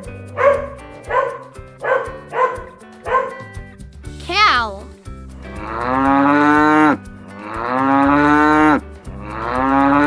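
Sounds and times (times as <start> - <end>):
cow mooing: 9.2 - 10.0.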